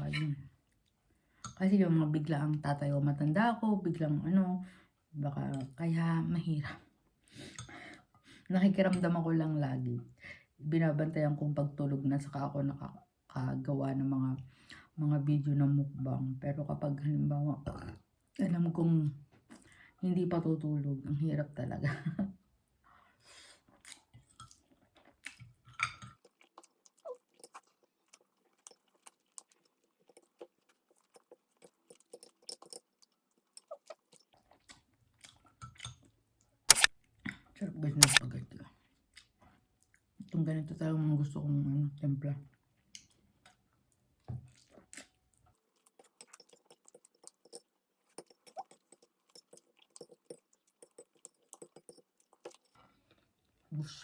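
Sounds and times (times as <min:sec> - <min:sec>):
person chewing wetly: 0:23.7 - 0:38.2, 0:38.9 - 0:40.4, 0:42.7 - 0:53.7.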